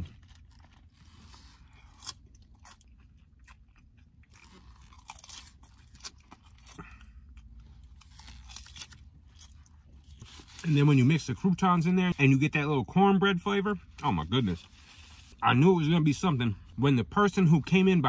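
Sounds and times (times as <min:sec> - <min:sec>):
chewing crisp salad: 0:00.0 - 0:10.9
low steady hum: 0:00.0 - 0:18.0.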